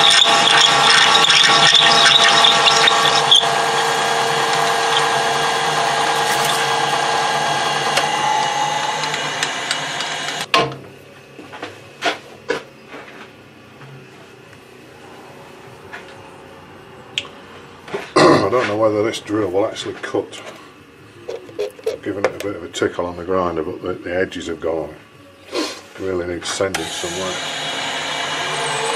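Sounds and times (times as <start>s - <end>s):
workshop machine motor whining: 0.0s - 10.5s, 26.6s - 28.9s.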